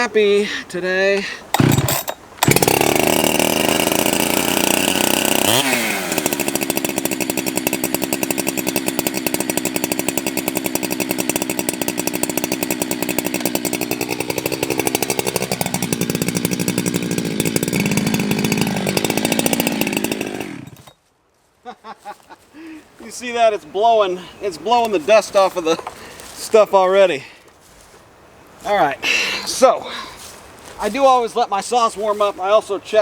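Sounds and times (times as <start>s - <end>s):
chainsaw idling: 1.5s - 21.0s.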